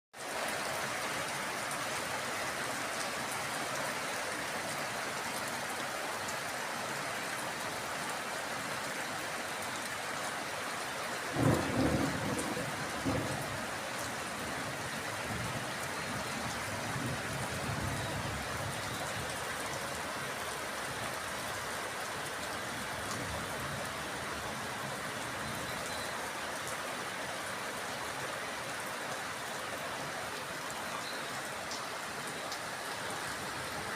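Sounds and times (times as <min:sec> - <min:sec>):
heavy rain falling: 0:00.2 - 0:33.9
thunderclap and rolling thunder: 0:11.4 - 0:13.7.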